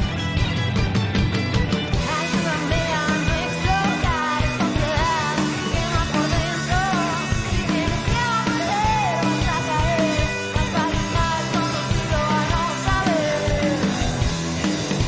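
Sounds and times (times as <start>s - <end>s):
bass: 0.0s - 15.0s
drums: 0.0s - 15.0s
electric guitars: 0.0s - 15.0s
lead melody line: 0.0s - 15.0s.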